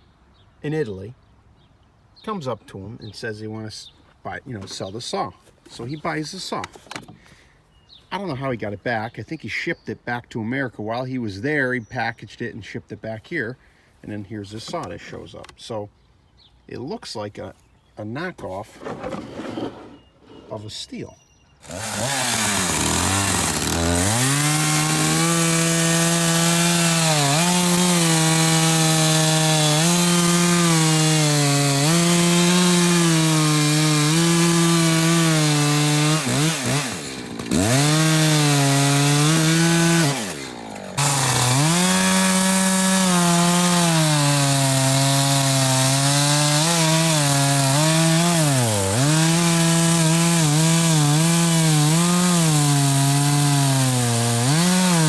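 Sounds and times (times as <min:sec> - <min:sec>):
chainsaw cutting wood: 0:21.6 - 0:55.0.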